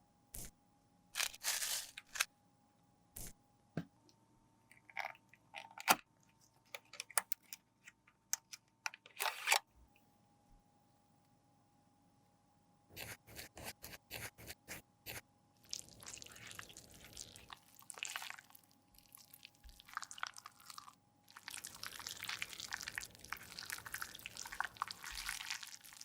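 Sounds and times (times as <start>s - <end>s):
makeup crunching and scraping: 1.2s - 2.3s.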